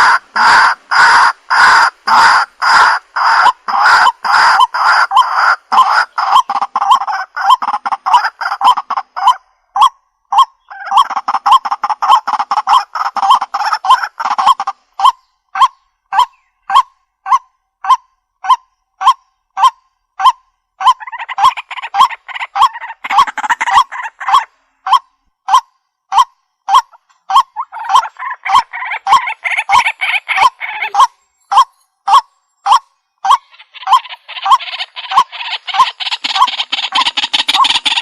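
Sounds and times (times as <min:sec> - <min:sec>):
waterhen calling: 0:00.0 - 0:38.0.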